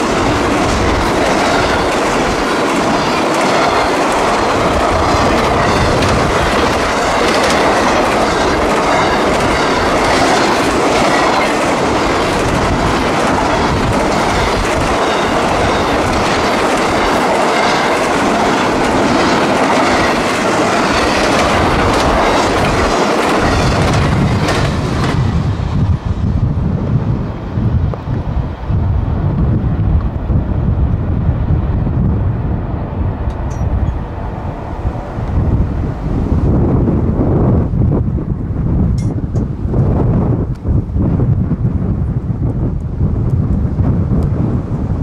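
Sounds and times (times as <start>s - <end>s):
clickety-clack over rail joints: 0.0s - 26.6s, 38.9s - 39.6s
steel wheels on rail: 0.0s - 45.0s
wind buffeting microphone: 0.0s - 45.0s.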